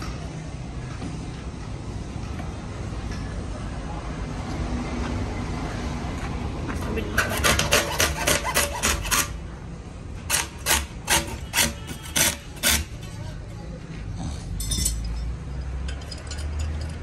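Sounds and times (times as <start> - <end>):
rasping scraping strokes: 6.9 - 9.4, 10.3 - 13.2.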